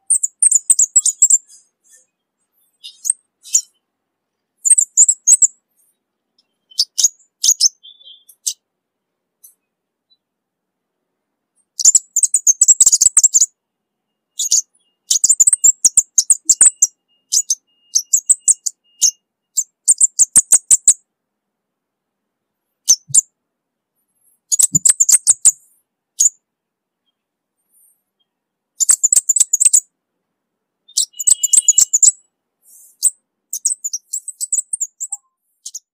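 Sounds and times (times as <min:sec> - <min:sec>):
bird ticking chirps: 0:00.0 - 0:03.9, 0:04.6 - 0:08.6, 0:11.6 - 0:13.6, 0:14.3 - 0:21.0, 0:22.8 - 0:23.3, 0:24.3 - 0:26.4, 0:27.8 - 0:29.9, 0:30.9 - 0:35.9.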